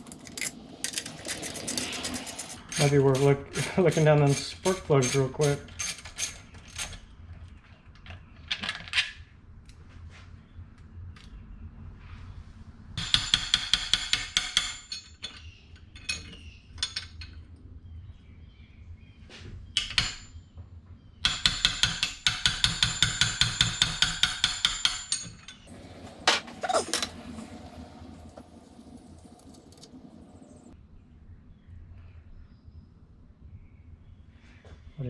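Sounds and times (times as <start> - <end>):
metal tools clinking: 0.0 - 3.3, 25.7 - 30.7.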